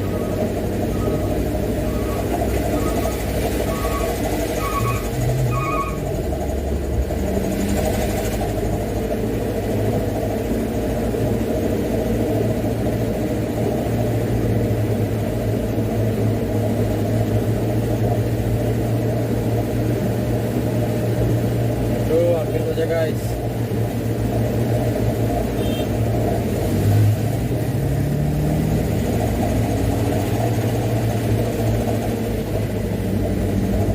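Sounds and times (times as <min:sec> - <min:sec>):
truck diesel engine droning: 0:00.0 - 0:33.9.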